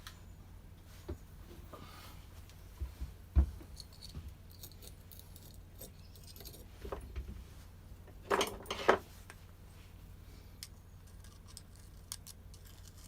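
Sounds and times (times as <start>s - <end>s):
small metal parts clinking: 3.8s - 6.7s.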